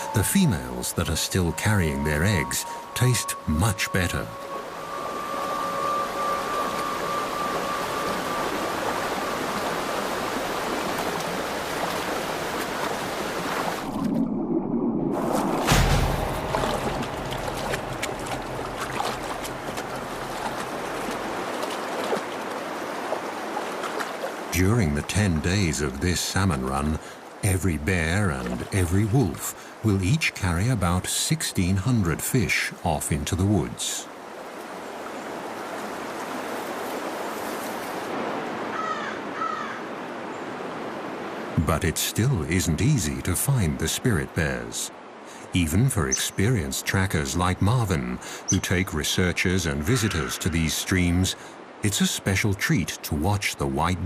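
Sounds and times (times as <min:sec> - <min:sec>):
creek water running over stones: 0:00.0 - 0:14.3, 0:15.1 - 0:38.2
small sharp splashes: 0:15.2 - 0:24.5
heavy low thump: 0:15.3 - 0:20.0.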